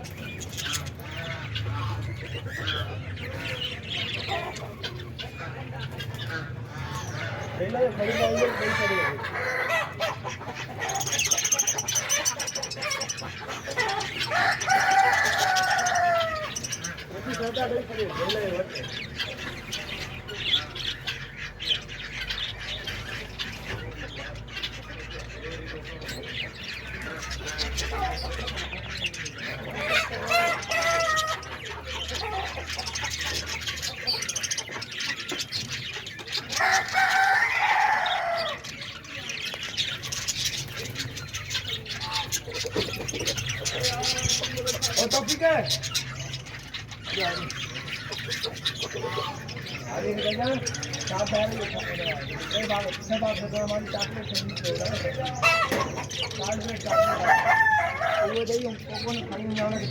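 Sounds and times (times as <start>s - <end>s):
budgerigars chattering and warbling: 0.0s - 59.9s
rooster crowing: 14.2s - 16.6s, 36.5s - 38.8s, 56.9s - 58.5s.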